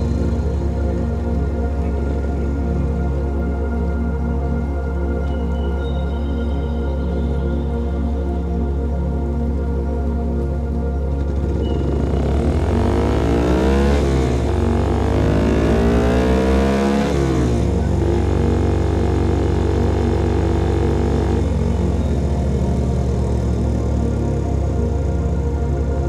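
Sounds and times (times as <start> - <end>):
motorcycle engine accelerating: 0.0 - 3.2, 11.2 - 26.0.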